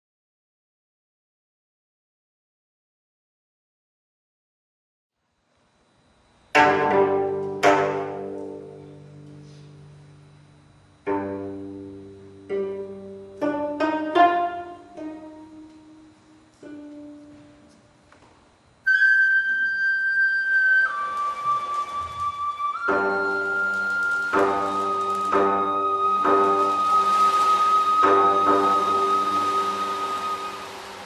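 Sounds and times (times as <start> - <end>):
plucked zither chords: 6.6 - 10.0, 11.0 - 17.7, 22.9 - 31.0
bamboo flute high note: 18.8 - 31.0.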